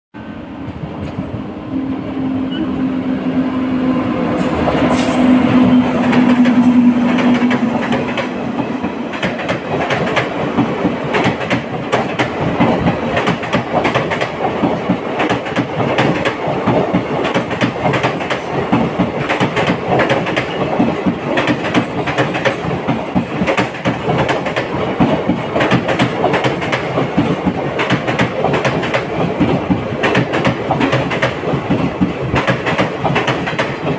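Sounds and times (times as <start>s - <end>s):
train low tone: 0.2s - 9.3s
train wheels clattering over joints: 6.0s - 33.9s.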